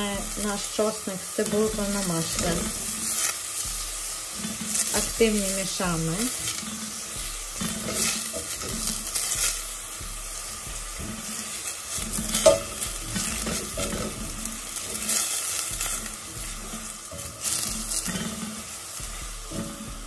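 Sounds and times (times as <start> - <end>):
onion and garlic sizzling in butter: 0.0 - 20.0
spatula scraping pot bottom: 6.4 - 9.6, 15.9 - 18.8.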